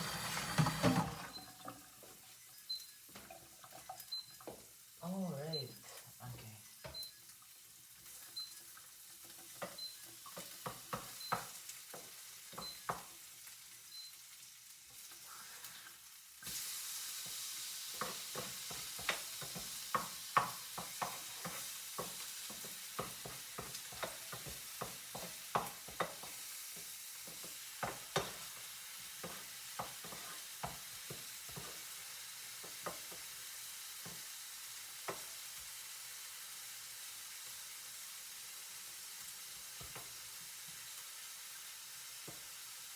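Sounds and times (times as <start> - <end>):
food sizzling in a pan: 0.0 - 42.9
utensil clicking against pan: 18.0 - 28.6.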